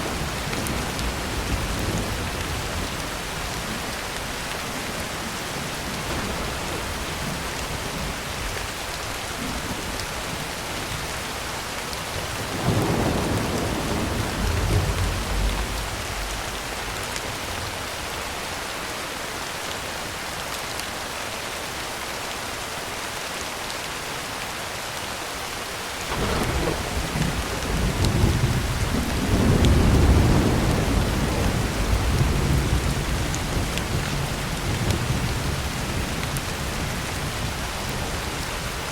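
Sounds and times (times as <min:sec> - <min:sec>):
thunder rumbling: 0:00.0 - 0:10.4, 0:12.2 - 0:18.2, 0:26.1 - 0:38.9
heavy rain on a tin roof: 0:00.0 - 0:38.9.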